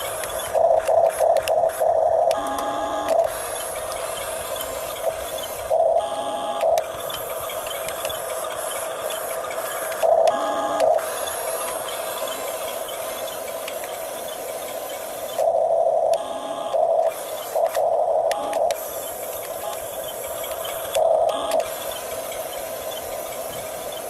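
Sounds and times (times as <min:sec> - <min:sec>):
toy motors and gearboxes whining: 0:00.0 - 0:24.0.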